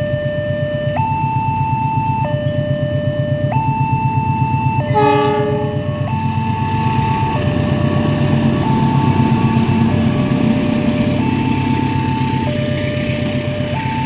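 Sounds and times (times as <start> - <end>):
train engine and wheel rumble: 0.0 - 14.0
two-tone level crossing alarm: 0.0 - 14.0
locomotive horn blast: 4.9 - 6.3.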